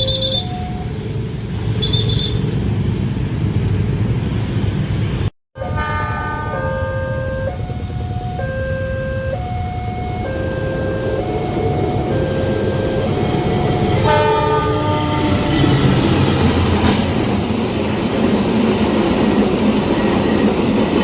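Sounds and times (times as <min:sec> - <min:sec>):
traffic engines rumbling: 0:00.0 - 0:21.0
two-note crossing alarm: 0:06.5 - 0:14.2.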